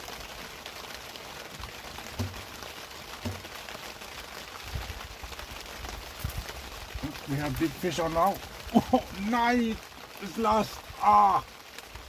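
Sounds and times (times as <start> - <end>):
heavy rain pouring: 0.0 - 12.0
dull knocks: 2.1 - 2.6, 3.2 - 3.6.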